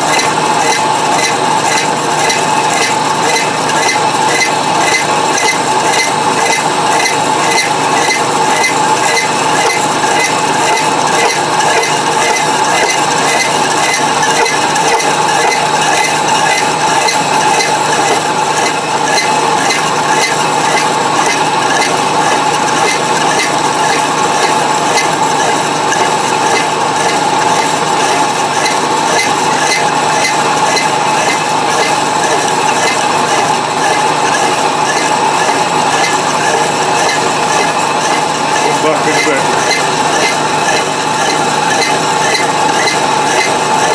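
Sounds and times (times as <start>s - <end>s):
milling machine humming: 0.0s - 43.9s
regular mechanical ticking: 0.0s - 43.9s.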